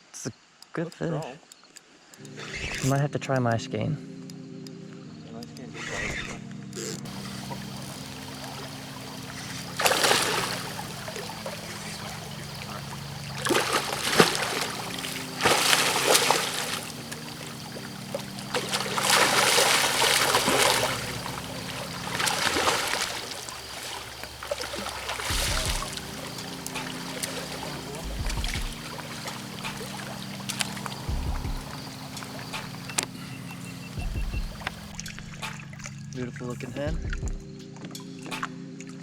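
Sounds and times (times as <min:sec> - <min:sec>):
loud splashing: 0:07.1 - 0:34.9
river water flowing: 0:07.1 - 0:34.9.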